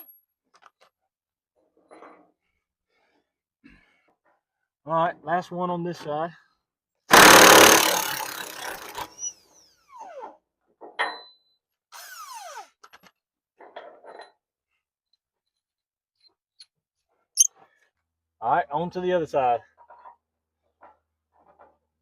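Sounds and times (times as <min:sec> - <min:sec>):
loud power tool burst: 0:07.1 - 0:09.2.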